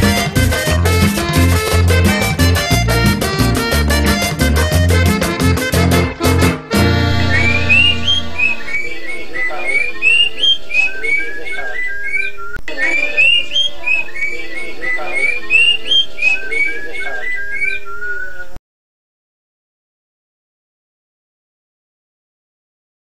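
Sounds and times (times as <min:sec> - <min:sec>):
oriole whistling song: 0:07.1 - 0:18.5.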